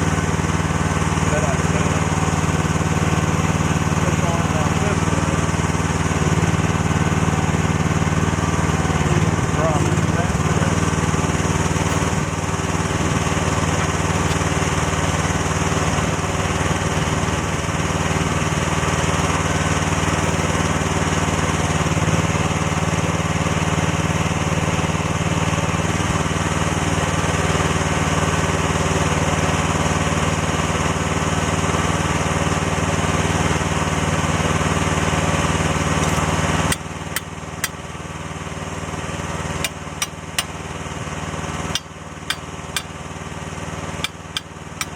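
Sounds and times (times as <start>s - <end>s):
excavator engine running: 0.0s - 44.9s
sharp metallic knocks: 41.7s - 43.0s, 44.0s - 44.9s.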